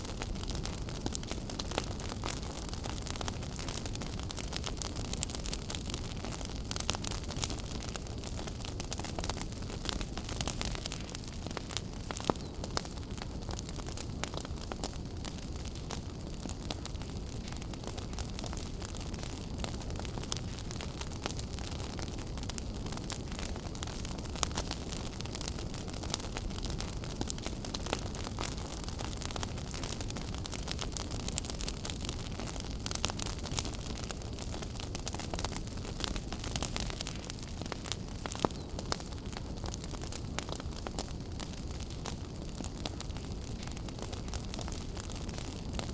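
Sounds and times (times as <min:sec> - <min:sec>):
wood fire crackling and popping: 0:00.0 - 0:45.9.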